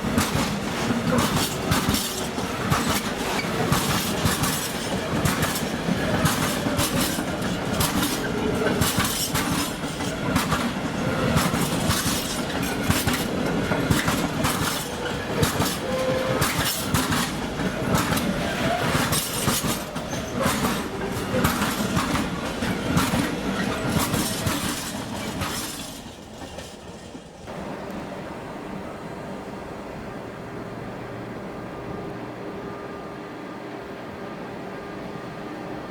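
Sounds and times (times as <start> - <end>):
train wheels clicking over rail joints: 0.0 - 28.1.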